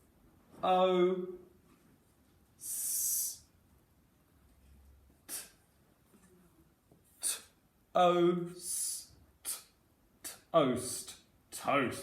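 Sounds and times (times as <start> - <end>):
sharp sniff: 5.2 - 5.6, 8.8 - 10.5.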